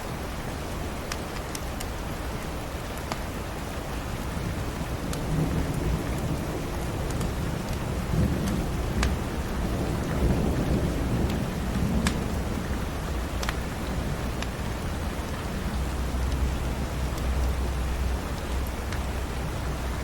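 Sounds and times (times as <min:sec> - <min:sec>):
steady rain: 0:00.0 - 0:20.0
wood fire crackling: 0:00.9 - 0:20.0
rolling thunder: 0:04.9 - 0:16.3.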